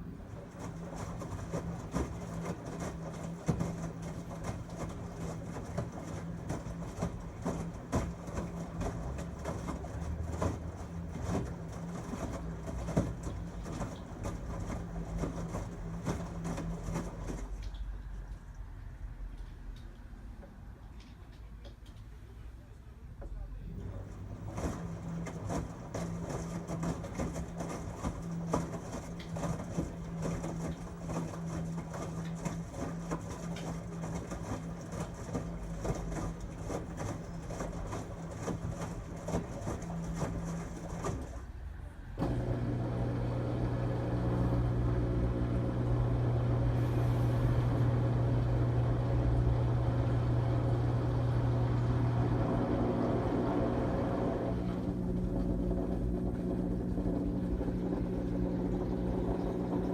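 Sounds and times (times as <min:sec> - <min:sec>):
washing machine running: 0:00.0 - 0:22.0, 0:23.2 - 0:59.9.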